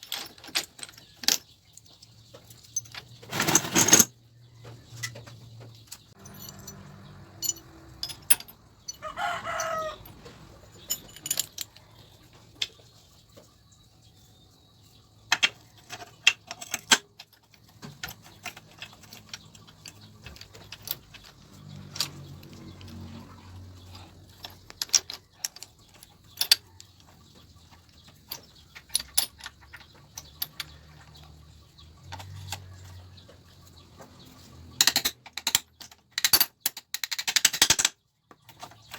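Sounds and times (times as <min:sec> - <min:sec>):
metal tools clicking and clinking: 0:00.0 - 0:04.2, 0:04.9 - 0:12.7, 0:15.3 - 0:33.0, 0:34.6 - 0:38.9
rooster crowing: 0:08.9 - 0:10.2.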